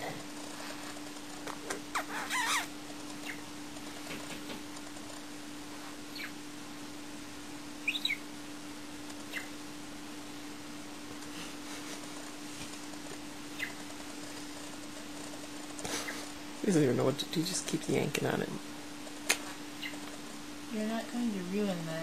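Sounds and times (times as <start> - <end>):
budgerigar chirping: 2.0 - 3.4, 6.1 - 6.4, 7.8 - 8.2.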